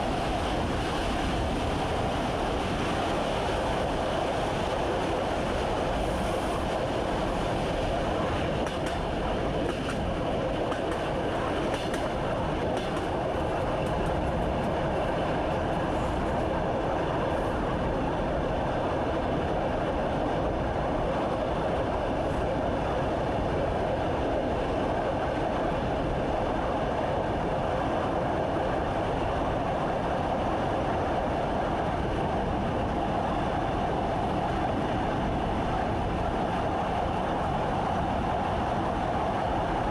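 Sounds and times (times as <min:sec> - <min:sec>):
train running on track: 0:00.0 - 0:39.9.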